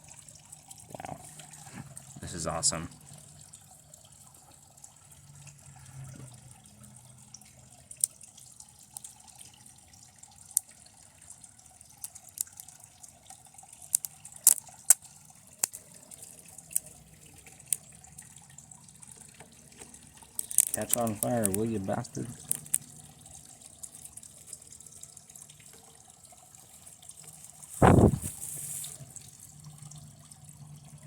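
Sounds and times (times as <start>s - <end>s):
circuit board crackling and popping: 20.4s - 21.7s.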